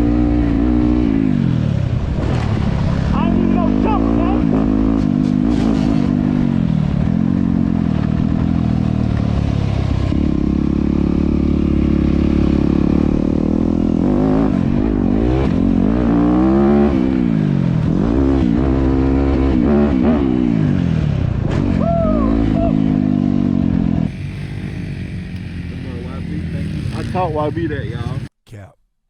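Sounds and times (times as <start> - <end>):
dirt bike engine revving: 0.0 - 28.3.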